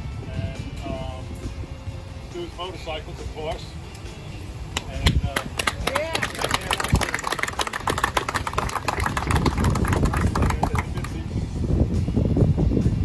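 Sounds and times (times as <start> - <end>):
steady low rumble: 3.7 - 13.0
crowd applauding: 5.0 - 11.2.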